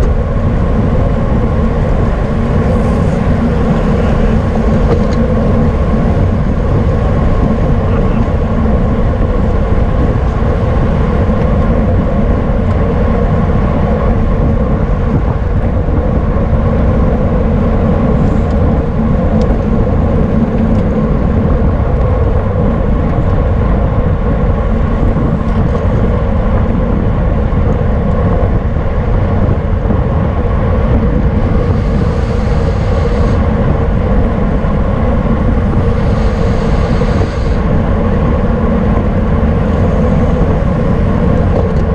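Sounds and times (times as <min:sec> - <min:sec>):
tyres rumbling on road: 0:00.0 - 0:41.9
wind on microphone: 0:00.0 - 0:41.9.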